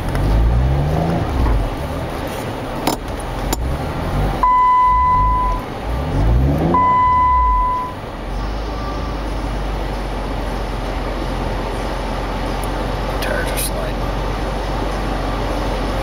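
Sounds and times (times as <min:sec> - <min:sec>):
car engine revving and idling: 0:00.0 - 0:16.0
long electronic beeps: 0:04.4 - 0:05.6, 0:06.7 - 0:08.0.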